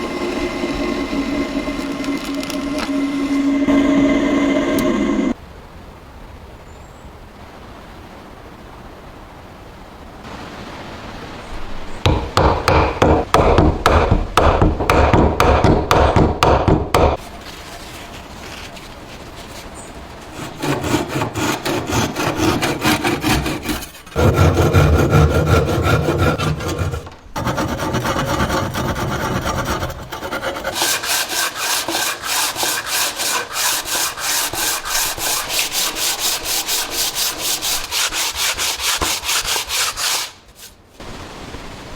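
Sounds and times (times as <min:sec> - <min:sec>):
hand tool scraping wood: 0:00.0 - 0:05.4, 0:19.7 - 0:40.8.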